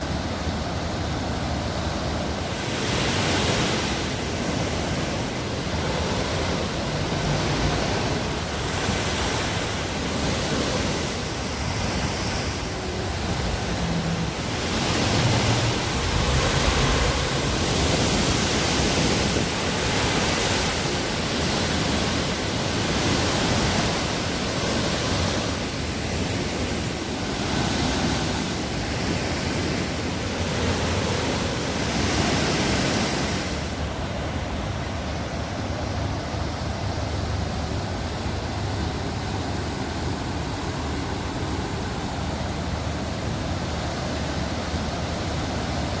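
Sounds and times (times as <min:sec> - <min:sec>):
waterfall rushing water: 0:00.0 - 0:46.0.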